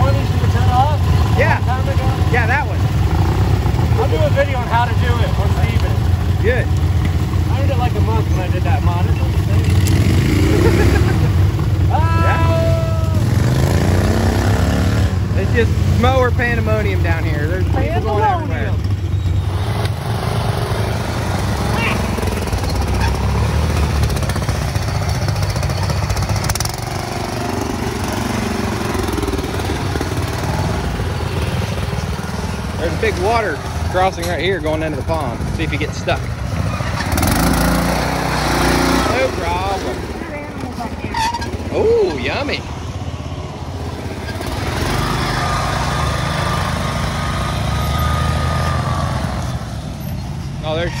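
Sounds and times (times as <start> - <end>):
riding mower engines running: 0.0 - 51.0.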